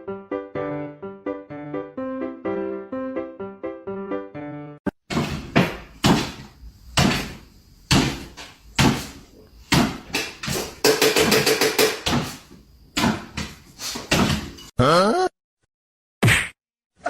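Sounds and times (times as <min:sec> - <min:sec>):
bangs and knocks: 0:05.1 - 0:14.7.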